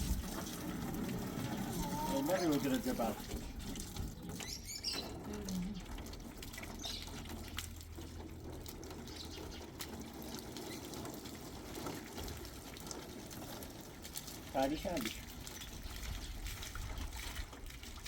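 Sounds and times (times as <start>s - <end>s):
running water: 0.0s - 18.0s
faint voices: 1.4s - 3.4s.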